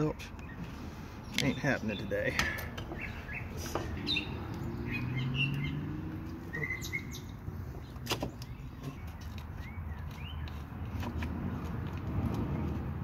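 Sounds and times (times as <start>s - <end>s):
birds chirping: 0.0s - 11.2s
vehicle passing: 3.0s - 8.0s, 10.4s - 13.0s.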